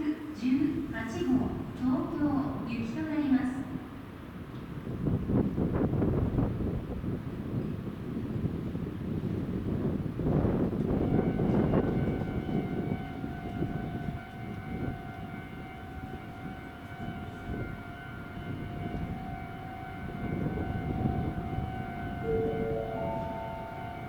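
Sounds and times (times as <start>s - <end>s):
train wheels rumbling: 4.2s - 24.0s
steady high-pitched tone: 16.2s - 24.0s
station chime: 22.2s - 24.0s.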